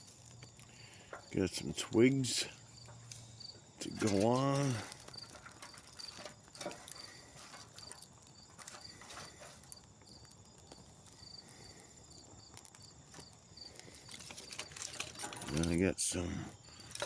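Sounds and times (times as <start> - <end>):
insects chirping: 0.0 - 17.0
dry twigs snapping: 2.9 - 15.8.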